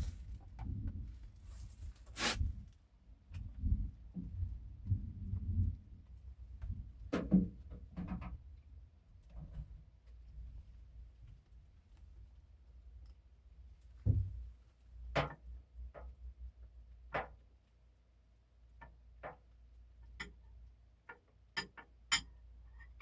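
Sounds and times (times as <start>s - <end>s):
low thump: 14.0s - 14.4s.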